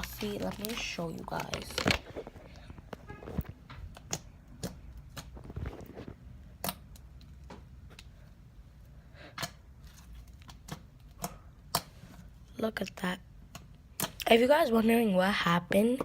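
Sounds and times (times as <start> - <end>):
slime squelching: 0.0 - 14.5.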